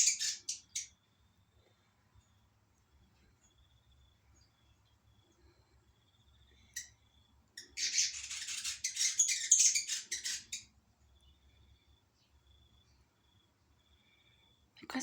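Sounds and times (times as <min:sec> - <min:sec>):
bird squeaky chirps: 0:00.0 - 0:01.0, 0:07.6 - 0:10.7.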